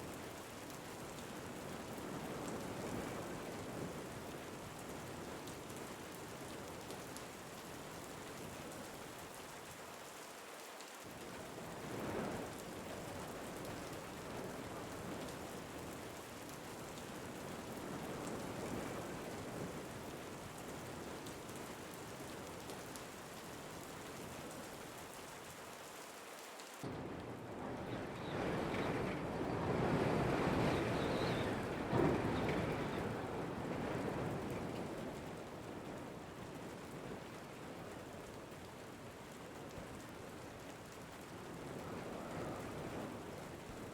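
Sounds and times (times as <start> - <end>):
steady rain falling: 0.0 - 43.9
wind gusts: 26.8 - 37.8, 41.3 - 43.9.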